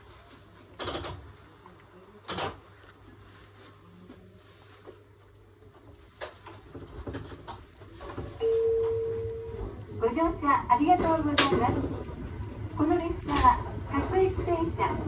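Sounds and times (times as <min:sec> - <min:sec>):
electric train hum: 0:08.2 - 0:15.0.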